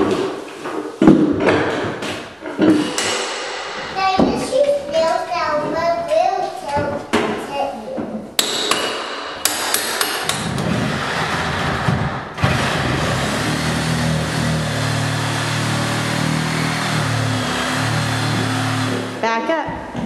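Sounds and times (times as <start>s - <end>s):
hammer striking a wall: 8.4s - 10.8s.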